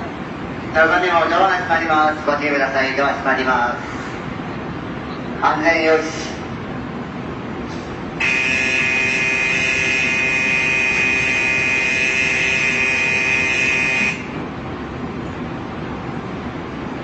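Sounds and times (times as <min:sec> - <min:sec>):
platform departure buzzer: 0:08.2 - 0:14.4.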